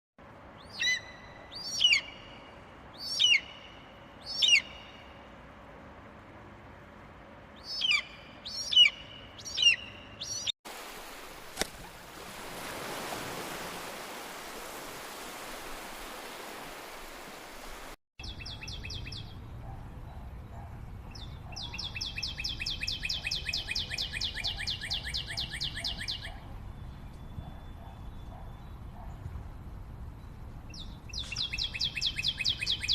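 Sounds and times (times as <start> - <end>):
birds whistling calls: 0.6 - 2.4, 3.0 - 5.0, 7.6 - 10.5, 21.2 - 29.1, 30.8 - 32.9
bird trilling: 3.0 - 4.9, 7.6 - 10.5.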